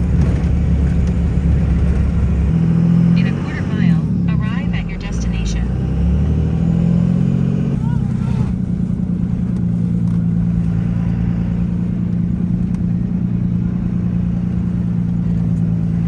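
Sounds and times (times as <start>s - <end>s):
road noise: 0.0s - 16.0s
vehicle engine running: 0.0s - 16.0s.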